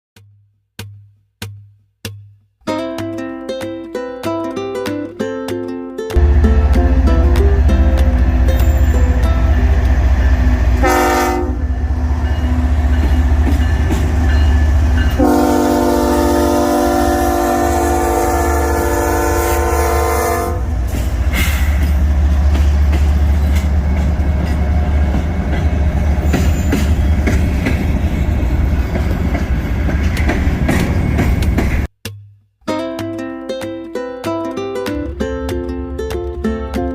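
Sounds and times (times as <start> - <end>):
diesel locomotive engine rumbling: 6.2 - 31.9
train air horn blasts: 10.7 - 11.8, 15.1 - 21.8.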